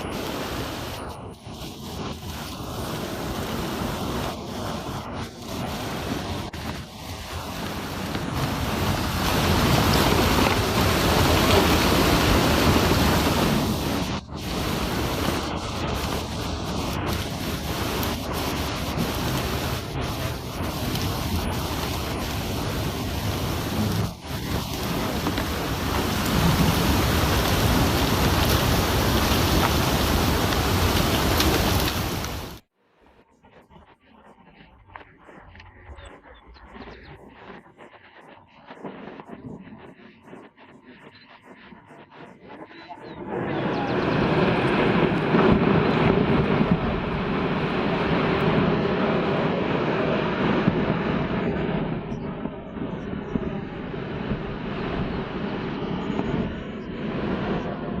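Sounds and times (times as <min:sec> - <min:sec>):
heavy rain falling: 0:00.0 - 0:01.1, 0:01.9 - 0:32.6, 0:43.7 - 0:49.9
surf rushing: 0:00.0 - 0:32.6, 0:41.9 - 0:51.8
wind: 0:00.0 - 0:58.0.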